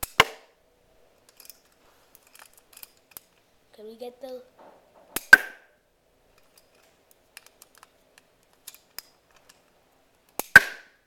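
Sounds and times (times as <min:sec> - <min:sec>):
sharp plastic snap: 0:05.1 - 0:05.7, 0:10.3 - 0:11.0.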